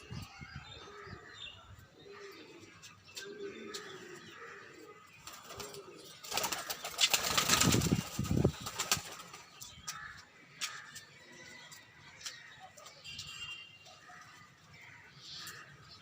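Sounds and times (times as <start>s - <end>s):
pigeons cooing: 2.0s - 8.6s
wings flapping: 5.2s - 9.4s.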